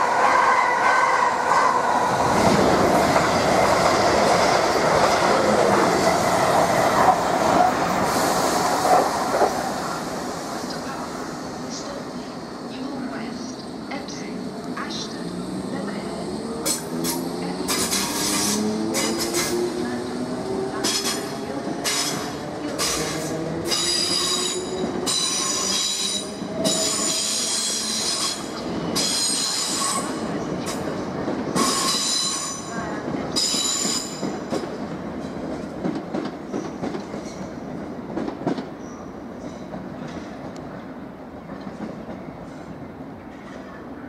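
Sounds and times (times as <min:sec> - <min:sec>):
train running noise: 0:00.0 - 0:44.0
train wheels squealing: 0:23.7 - 0:30.2, 0:31.6 - 0:32.8, 0:33.4 - 0:34.4.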